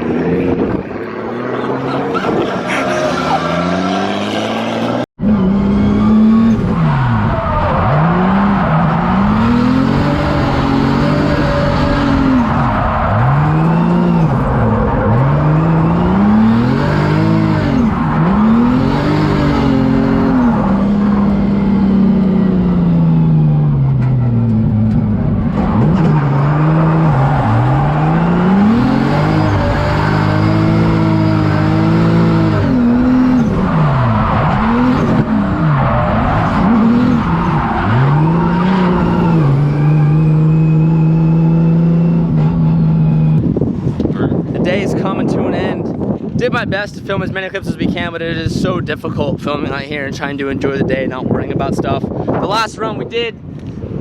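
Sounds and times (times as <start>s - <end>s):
tires squealing: 0.0s - 5.0s, 5.7s - 22.6s, 23.4s - 41.4s
car engine revving hard: 0.0s - 23.6s, 24.3s - 43.5s.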